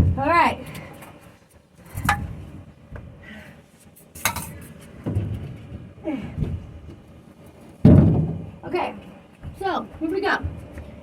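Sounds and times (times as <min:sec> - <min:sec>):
metal tools clinking and knocking: 0:04.2 - 0:04.6.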